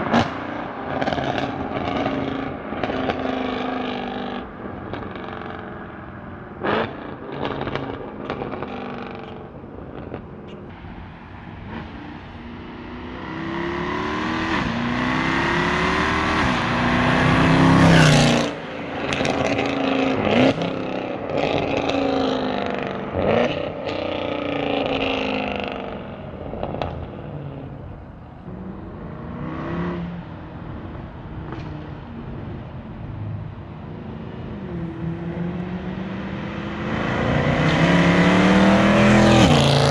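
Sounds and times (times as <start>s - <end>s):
car engine revving: 11.4s - 39.9s.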